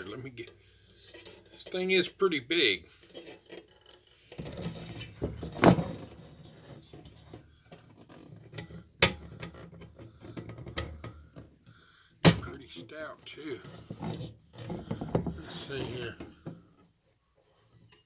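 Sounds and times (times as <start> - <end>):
metal lantern clinks and knocks: 7.7 - 11.2.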